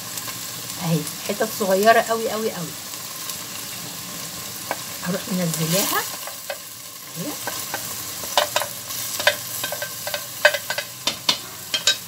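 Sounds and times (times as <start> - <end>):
oil sizzling in a pot: 0.0 - 12.0
wooden spoon knocking on metal: 7.4 - 12.0.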